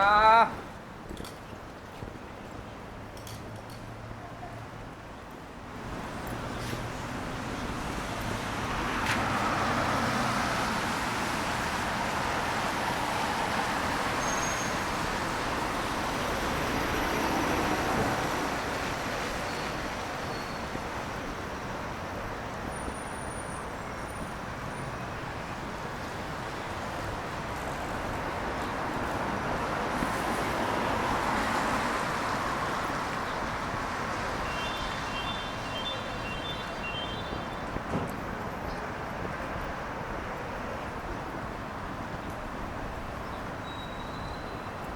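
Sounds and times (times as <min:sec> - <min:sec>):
traffic tyre hiss on wet road: 0:05.7 - 0:44.9.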